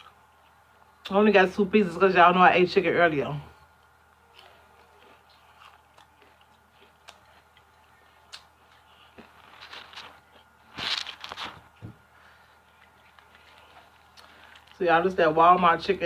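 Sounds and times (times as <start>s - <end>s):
chewing crispy fried chicken: 3.7s - 11.8s, 12.5s - 14.8s.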